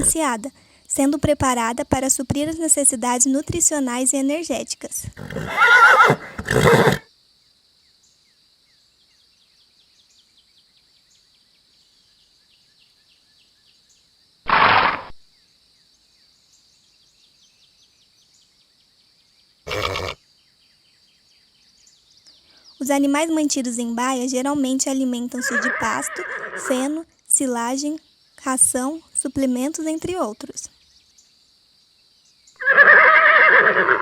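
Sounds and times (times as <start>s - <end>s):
faint high-pitched hiss: 0.0s - 33.9s
horse blowing breath: 5.2s - 7.0s, 14.5s - 15.2s.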